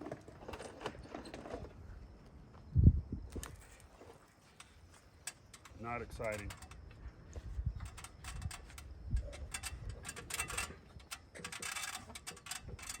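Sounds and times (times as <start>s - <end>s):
debris scraped from rain gutter: 7.8s - 13.0s.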